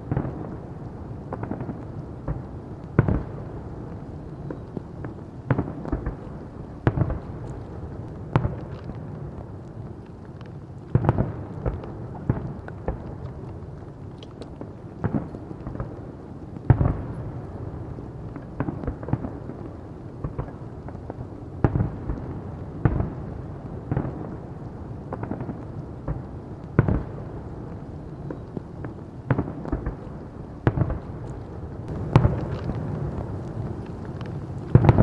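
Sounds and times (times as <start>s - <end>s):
fireworks bangs: 31.9s - 35.0s
steady low rumble: 31.9s - 35.0s.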